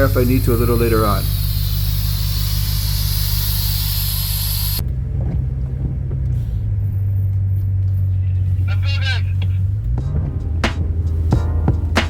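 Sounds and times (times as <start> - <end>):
air hissing from tire valve: 0.0 - 4.8
engine idling: 0.0 - 12.0.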